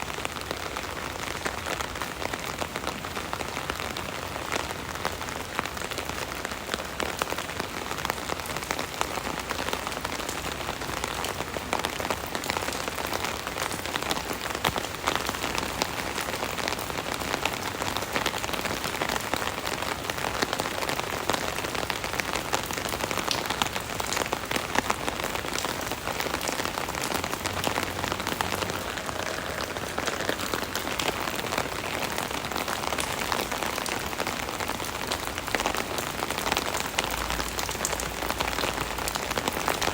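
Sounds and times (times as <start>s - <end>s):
rain drumming on umbrella: 0.0s - 39.9s.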